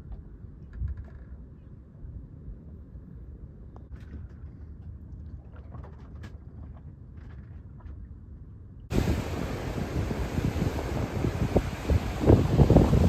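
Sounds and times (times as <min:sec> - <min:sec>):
boat motor rumbling: 0:08.9 - 0:13.0
water and waves: 0:08.9 - 0:13.0
wind buffeting microphone: 0:08.9 - 0:13.0.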